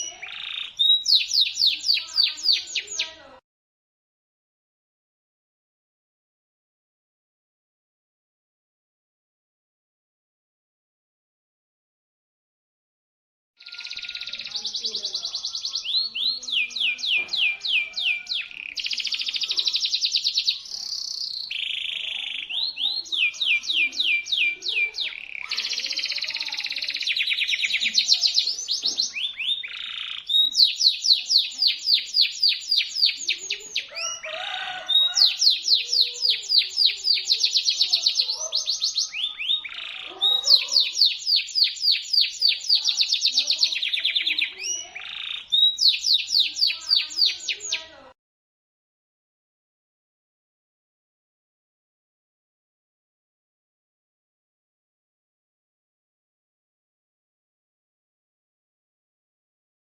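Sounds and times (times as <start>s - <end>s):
canary singing rapid trills: 0.0s - 3.2s, 13.6s - 48.0s.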